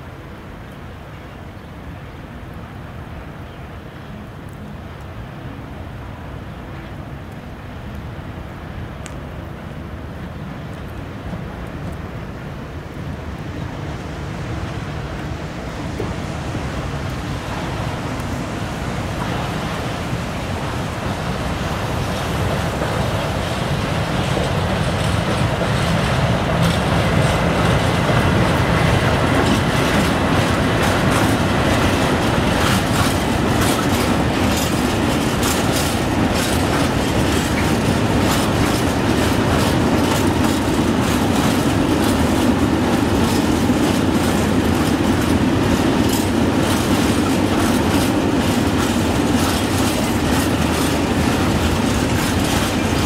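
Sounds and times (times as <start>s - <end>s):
freight train rolling past: 7.6s - 53.0s.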